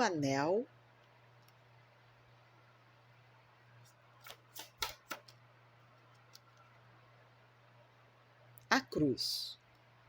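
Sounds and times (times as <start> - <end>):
faint steady hum: 0.0 - 10.0
cards clicking and tapping: 3.9 - 6.7.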